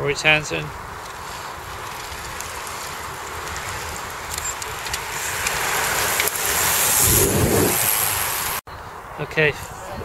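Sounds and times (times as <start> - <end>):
wind buffeting microphone: 0.0 - 10.0
bicycle tyres whooshing past: 0.6 - 8.6.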